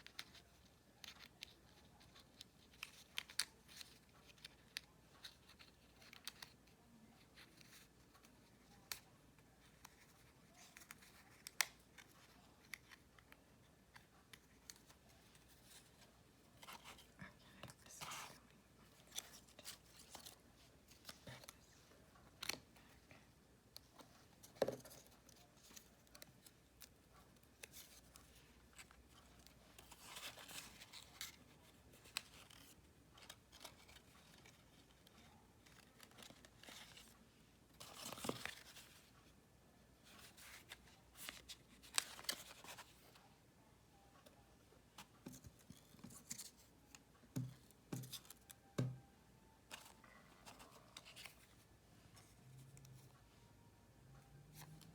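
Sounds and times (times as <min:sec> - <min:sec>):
paper rustling: 0:23.8 - 0:39.1.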